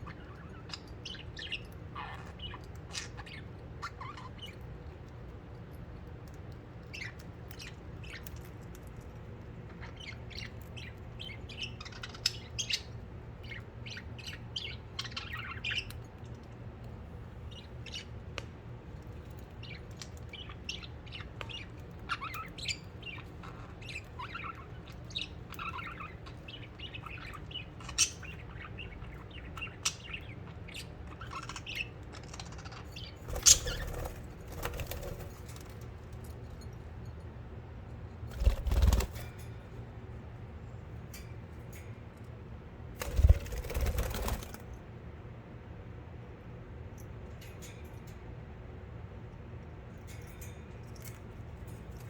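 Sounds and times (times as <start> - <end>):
budgerigars chirping: 0.0 - 4.6, 19.4 - 35.7.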